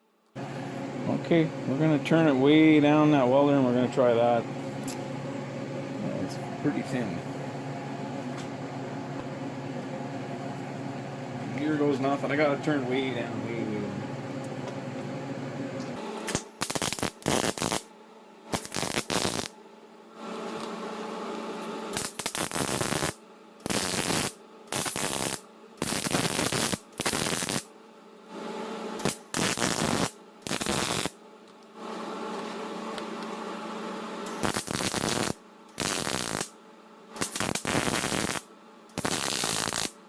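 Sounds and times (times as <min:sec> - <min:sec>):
steady hum: 0:00.0 - 0:40.0
welding arc crackling: 0:16.2 - 0:17.9, 0:18.5 - 0:19.6, 0:21.9 - 0:27.7, 0:29.0 - 0:31.2, 0:34.3 - 0:36.6, 0:37.2 - 0:40.0.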